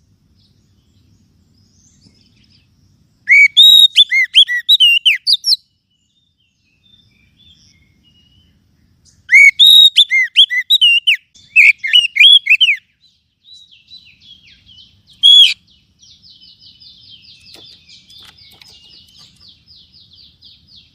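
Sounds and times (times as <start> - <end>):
bird singing loud whistled notes: 0.0 - 20.9
fast chattering bird trill: 9.3 - 12.8, 15.2 - 15.6.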